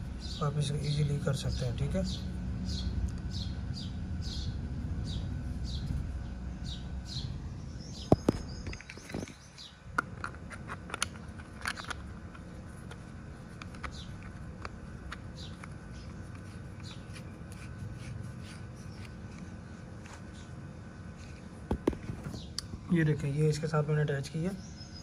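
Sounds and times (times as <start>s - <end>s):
bird chirping: 0.0s - 9.8s, 15.3s - 17.2s, 22.2s - 25.0s
plastic parts clicking and knocking: 8.1s - 15.8s.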